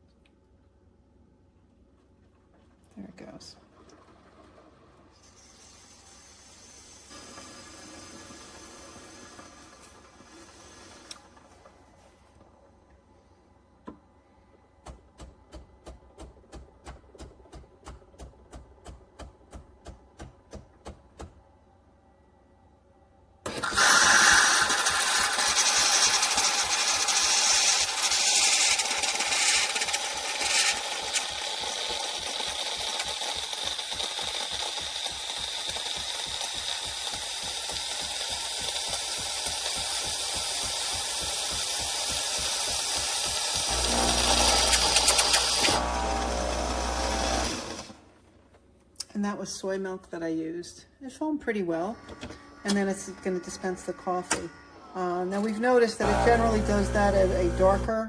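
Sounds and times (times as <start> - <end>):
milk frother hiss and buzz: 5.3 - 11.4, 23.5 - 48.0, 56.0 - 58.0
espresso machine soft pulses: 43.7 - 47.8, 56.0 - 58.0.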